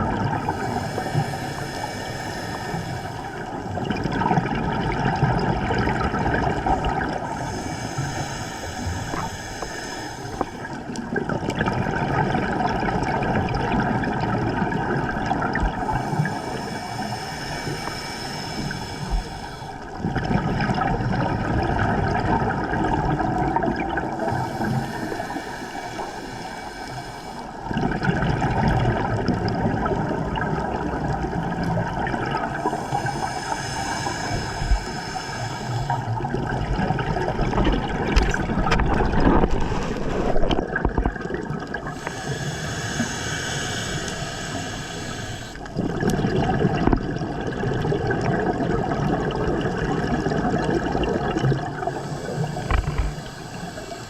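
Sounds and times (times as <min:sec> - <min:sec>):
gurgling exhaled bubbles: 0:00.0 - 0:26.7, 0:27.5 - 0:54.0
regulator inhale hiss: 0:00.4 - 0:03.7, 0:07.1 - 0:11.0, 0:15.8 - 0:20.0, 0:24.1 - 0:27.7, 0:31.1 - 0:36.3, 0:41.8 - 0:45.8, 0:51.4 - 0:54.0.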